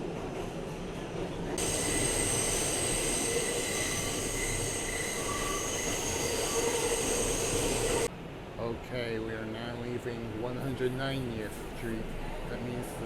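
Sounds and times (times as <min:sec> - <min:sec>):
subway car running: 0:00.0 - 0:13.0
wheels squealing: 0:01.6 - 0:08.1.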